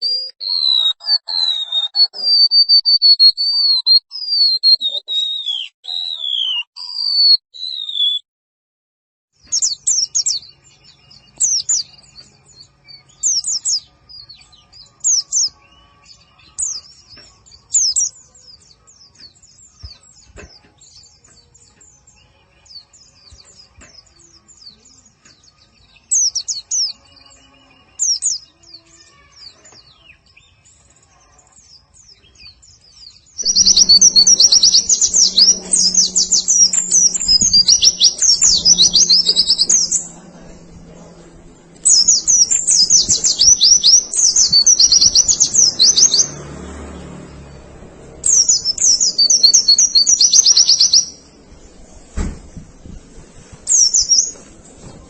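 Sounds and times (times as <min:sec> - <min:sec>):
bird chirps: 0:00.0 - 0:08.2, 0:09.4 - 0:52.8, 0:53.6 - 0:55.0
high rapid bird twittering: 0:09.4 - 0:12.2, 0:33.2 - 0:46.4, 0:47.4 - 0:52.8, 0:53.6 - 0:54.4.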